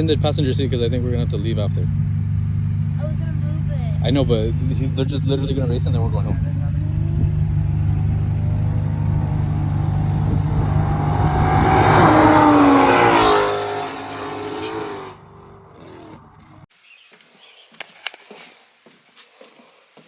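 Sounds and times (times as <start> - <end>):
racing cars accelerating past: 7.8 - 16.5.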